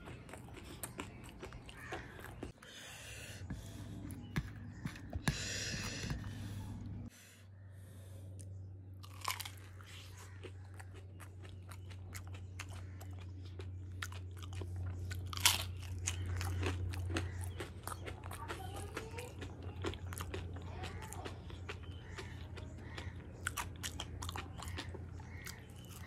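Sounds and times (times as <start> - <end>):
crunchy food biting and chewing: 0.0 - 2.7, 8.3 - 26.0
steady low hum: 0.0 - 26.0.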